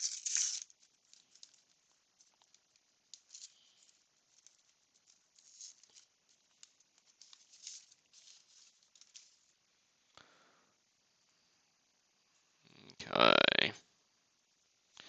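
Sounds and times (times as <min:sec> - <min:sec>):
cards clicking and rustling: 0:00.0 - 0:09.4.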